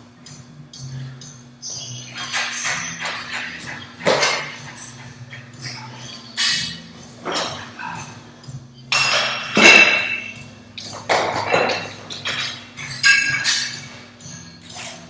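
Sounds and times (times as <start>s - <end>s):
steady low hum: 0.0s - 15.0s
weight plates clanking: 1.9s - 8.2s, 8.9s - 15.0s.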